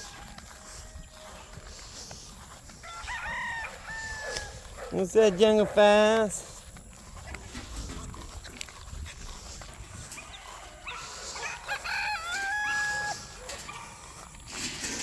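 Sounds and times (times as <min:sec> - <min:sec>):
rooster crowing: 0:00.0 - 0:01.6, 0:02.7 - 0:04.7, 0:10.2 - 0:13.7
faint birds of flock: 0:00.0 - 0:05.3, 0:09.2 - 0:15.0.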